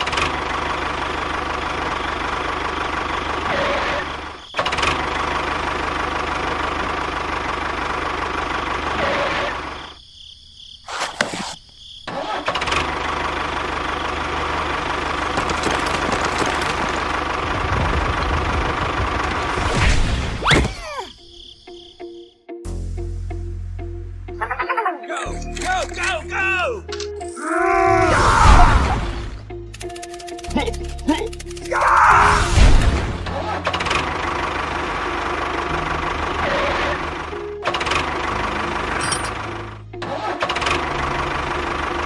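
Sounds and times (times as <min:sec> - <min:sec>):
tractor engine droning: 0:00.0 - 0:09.9, 0:10.9 - 0:19.8, 0:28.9 - 0:42.0
sharp clicks: 0:29.7 - 0:31.9.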